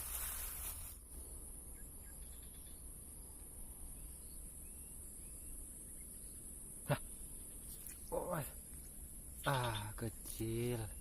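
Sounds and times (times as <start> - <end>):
rustling noise: 0.0 - 1.0.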